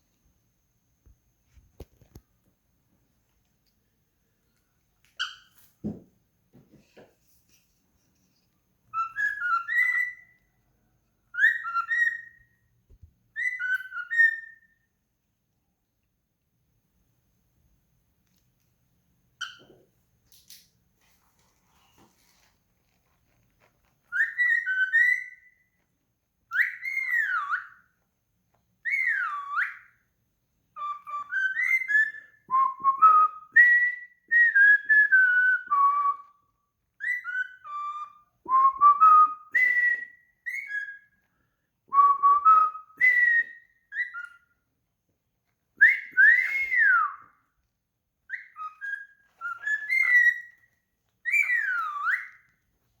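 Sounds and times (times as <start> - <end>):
bird whistling song: 5.2 - 5.7, 8.9 - 10.6, 11.3 - 14.9, 19.4 - 19.8, 24.1 - 25.8, 26.5 - 28.0, 28.8 - 30.0, 30.7 - 41.3, 41.9 - 44.6, 45.8 - 47.4, 48.3 - 52.6.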